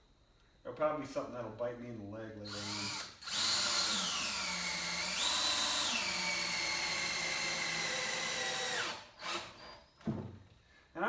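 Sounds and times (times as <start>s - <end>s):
cordless drill driving screw: 2.5s - 9.8s.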